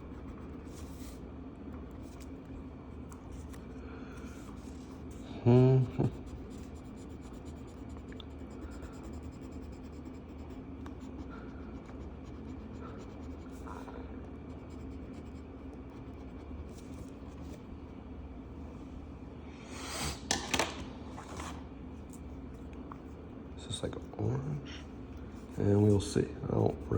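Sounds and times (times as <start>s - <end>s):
low room hum: 0.0s - 26.9s
marker scratching on paper: 6.1s - 17.6s.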